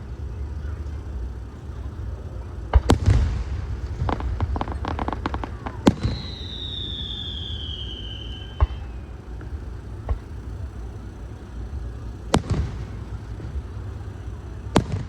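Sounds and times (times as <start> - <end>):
firework shells bursting: 0.0 - 15.0
firework whistling: 0.0 - 15.0.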